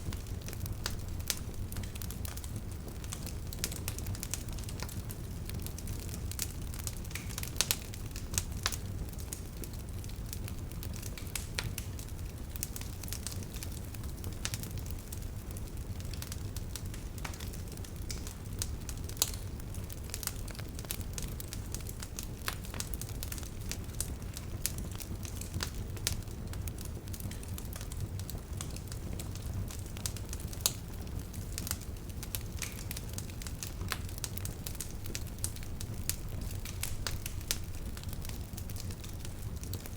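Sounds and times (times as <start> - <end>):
bonfire crackling and popping: 0.0 - 39.9.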